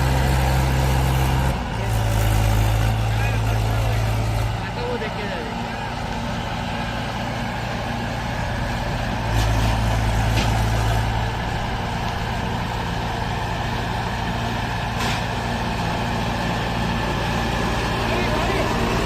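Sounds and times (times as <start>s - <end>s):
diesel tractor engine running: 0.0s - 19.0s.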